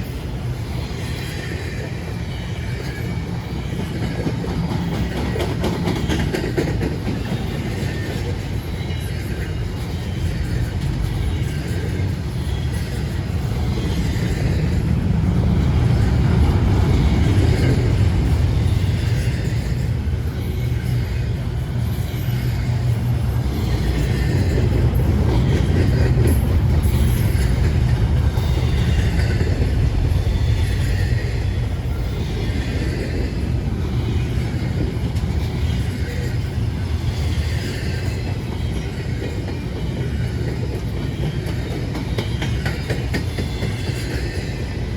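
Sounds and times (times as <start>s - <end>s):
freight train wheels rumbling: 0.0s - 44.9s.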